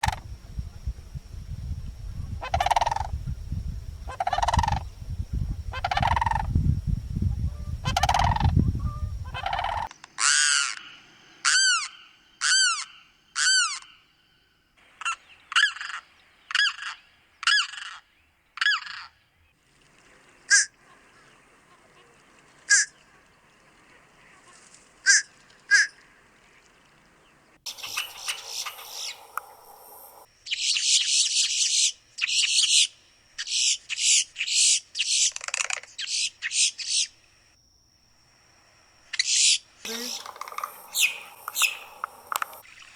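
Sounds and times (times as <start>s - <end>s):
harsh chattering bird call: 27.7s - 30.3s, 39.9s - 42.6s
honk-like bird call: 27.7s - 30.3s, 39.9s - 42.6s
short sharp bird calls: 27.7s - 30.8s, 39.3s - 42.6s
clear down-slurred bird notes: 39.9s - 42.6s.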